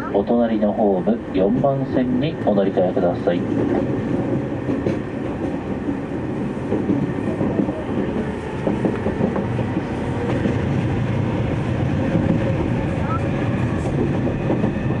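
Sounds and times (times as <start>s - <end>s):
rumble of train wheels on rail: 0.0s - 15.0s
wheels clickety-clack: 3.4s - 10.8s, 12.0s - 15.0s.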